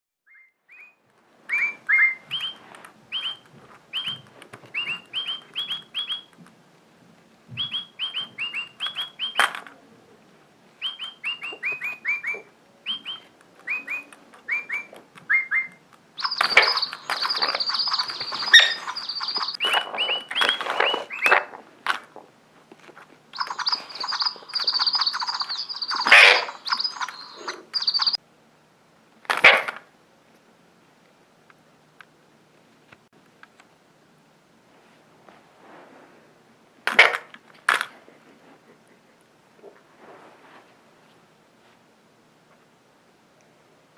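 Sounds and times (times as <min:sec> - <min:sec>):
bird whistled chirps: 0:00.2 - 0:06.3, 0:07.6 - 0:09.5, 0:10.8 - 0:21.4, 0:23.3 - 0:28.2
bird harsh chattering calls: 0:01.5 - 0:06.3, 0:07.6 - 0:09.5, 0:10.8 - 0:21.5, 0:23.3 - 0:28.2.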